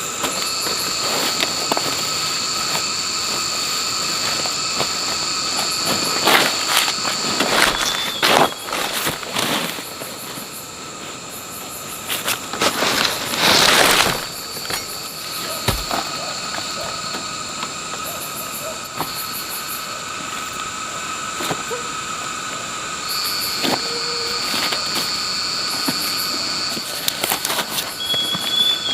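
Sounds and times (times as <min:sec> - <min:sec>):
insects calling: 0:00.0 - 0:28.9
loud rustling: 0:12.1 - 0:16.2.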